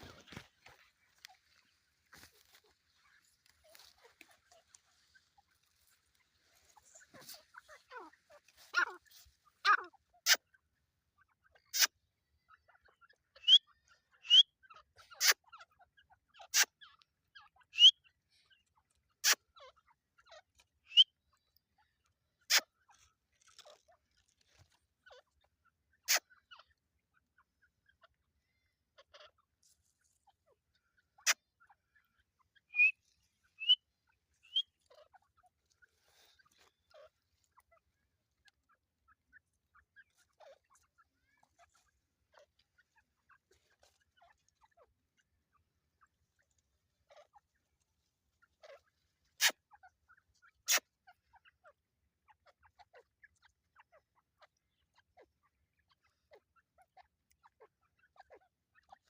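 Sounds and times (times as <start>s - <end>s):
faint bird chirps: 0.0s - 59.0s
francolin rising calls: 32.6s - 33.8s, 34.4s - 34.8s.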